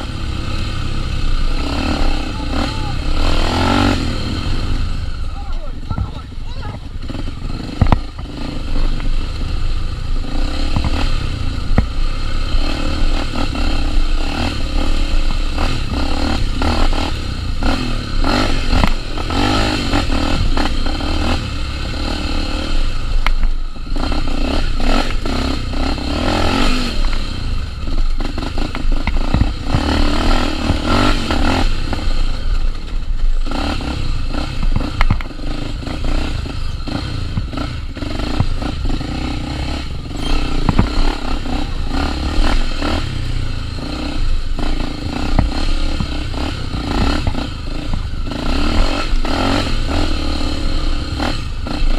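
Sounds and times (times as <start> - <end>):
motorcycle engine revving: 0.0 - 51.9
knocks and scrapes: 40.1 - 41.6.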